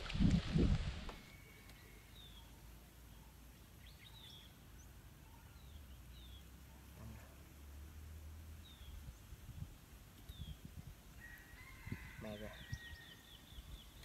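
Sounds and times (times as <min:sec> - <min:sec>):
water noise: 0:00.0 - 0:01.3
faint bird chirps: 0:01.1 - 0:07.4.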